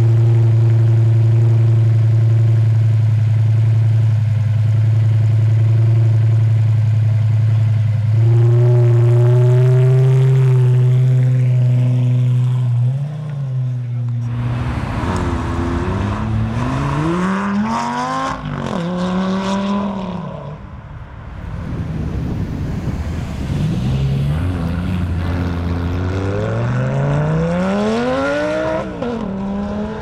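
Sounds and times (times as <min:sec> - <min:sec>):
sports car engine revving: 0:07.2 - 0:30.0.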